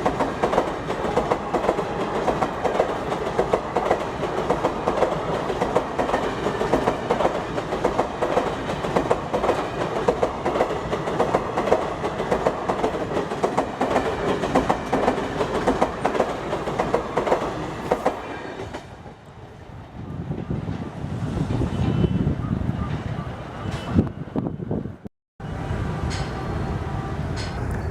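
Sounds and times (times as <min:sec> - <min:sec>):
train wheels clattering on rails: 0:00.0 - 0:19.1, 0:26.0 - 0:26.5, 0:27.2 - 0:27.9
train rumble: 0:00.0 - 0:27.9.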